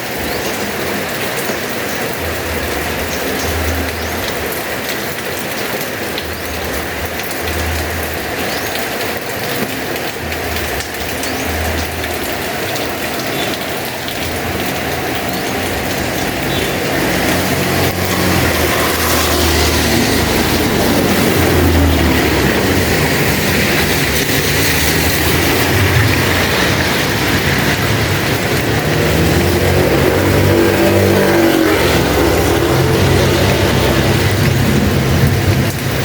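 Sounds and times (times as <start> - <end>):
heavy rain falling: 0.0 - 36.0
vehicle engine rumbling: 14.4 - 36.0.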